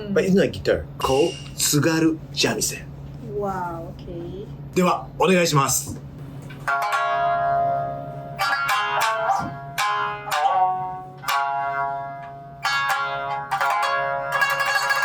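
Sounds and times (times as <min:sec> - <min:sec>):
shamisen notes struck hard: 0:06.6 - 0:15.0.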